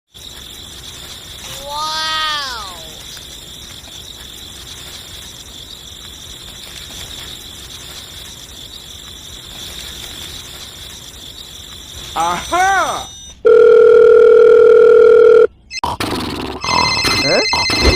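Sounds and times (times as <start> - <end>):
high-pitched insect trill: 0.1 - 14.0
faint hiss: 0.2 - 12.4.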